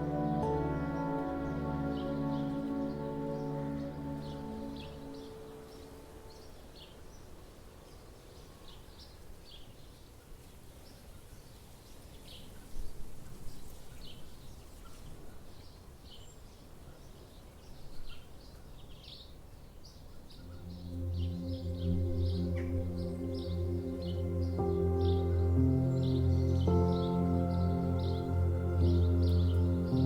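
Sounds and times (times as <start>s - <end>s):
soft music pad: 0.0s - 8.8s, 20.4s - 30.0s
small birds chirping: 13.5s - 30.0s.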